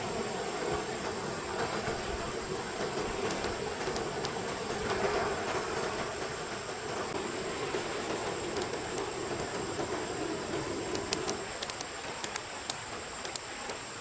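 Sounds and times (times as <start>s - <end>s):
stream water rushing: 0.0s - 14.0s
sharp light clicks: 10.8s - 13.9s.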